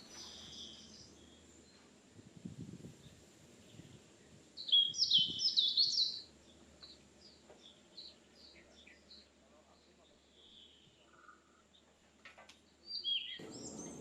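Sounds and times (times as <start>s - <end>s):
bird singing: 0.0s - 1.9s, 4.6s - 11.9s, 12.7s - 14.0s.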